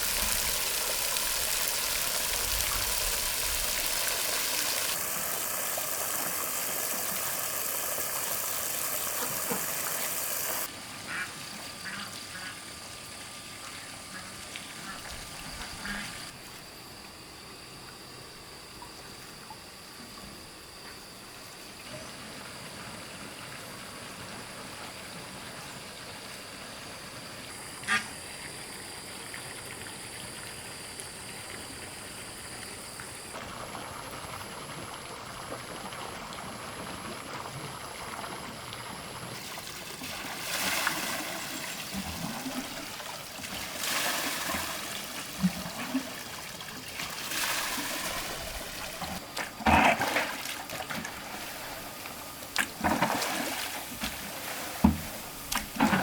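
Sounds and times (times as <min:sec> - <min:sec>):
water pouring and splashing: 0:00.0 - 0:10.7, 0:33.0 - 0:56.0
water trickling: 0:00.0 - 0:10.7.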